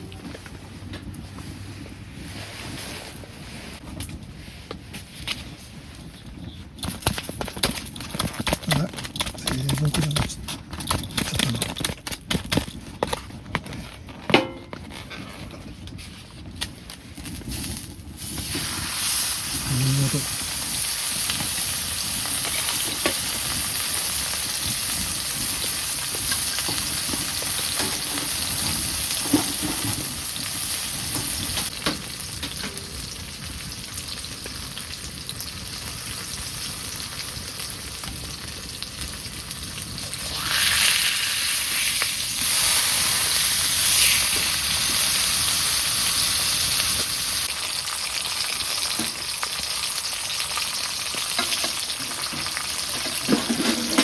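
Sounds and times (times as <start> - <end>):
steak sizzling in a hot pan: 17.6 - 53.0.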